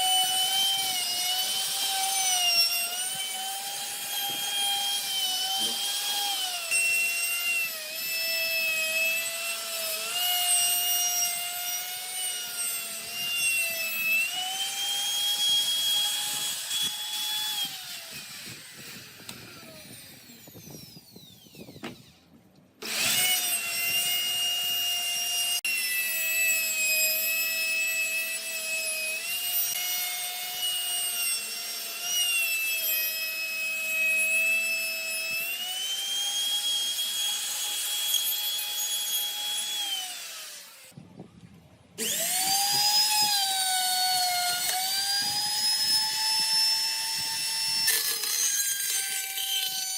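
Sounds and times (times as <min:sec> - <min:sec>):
power tool motor whining: 0:00.0 - 0:41.0, 0:42.0 - 0:49.9.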